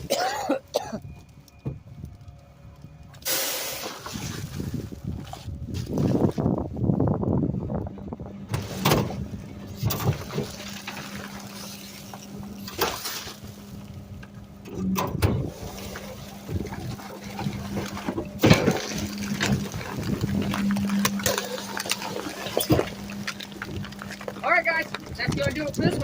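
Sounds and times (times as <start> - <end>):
refuse truck hopper humming: 0.0 - 26.0.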